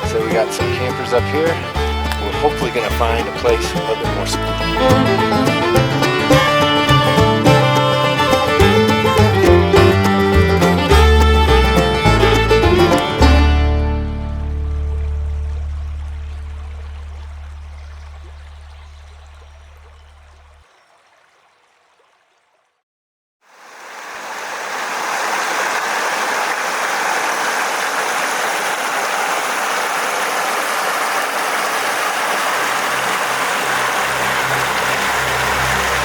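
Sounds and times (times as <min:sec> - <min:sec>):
song playing: 0:00.0 - 0:15.3
creek rushing: 0:00.0 - 0:22.6, 0:23.5 - 0:36.0
low hum: 0:13.1 - 0:20.6.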